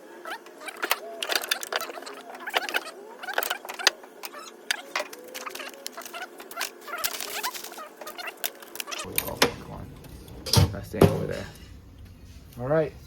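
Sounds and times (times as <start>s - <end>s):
faint squeaky tones: 0.0s - 10.6s
metal hand tools clinking: 0.6s - 10.7s.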